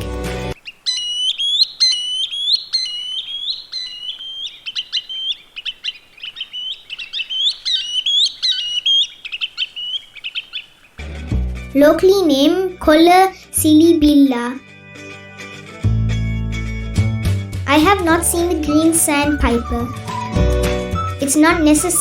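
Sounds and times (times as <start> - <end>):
sandpiper whistled calls: 0.6 - 10.9, 18.6 - 22.0.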